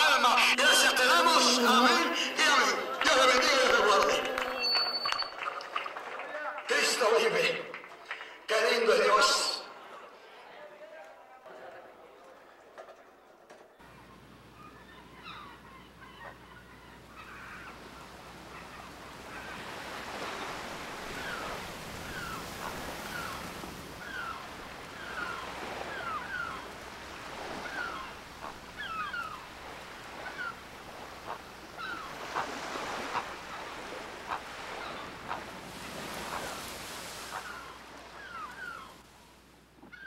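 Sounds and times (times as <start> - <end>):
birds chirping: 13.8 - 39.0
steady background hiss: 13.8 - 40.0.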